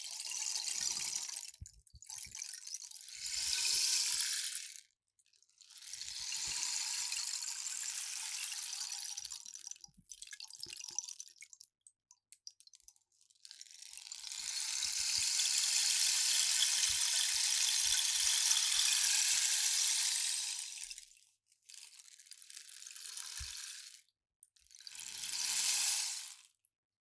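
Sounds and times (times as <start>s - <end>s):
rainstick pebbles trickling: 5.7s - 24.0s, 24.8s - 26.4s.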